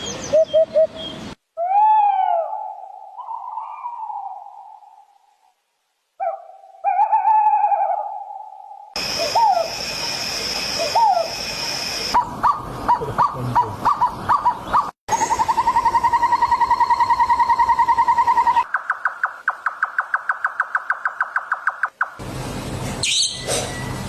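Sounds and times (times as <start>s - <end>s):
sharp repeated bird notes: 6.2s - 22.2s, 23.0s - 23.8s
upward-hooked bird calls: 10.7s - 22.2s.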